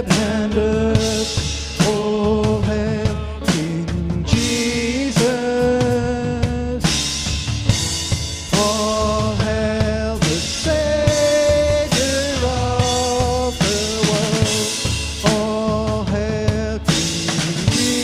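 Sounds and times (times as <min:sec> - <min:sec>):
drum kit beat: 0:00.0 - 0:18.0.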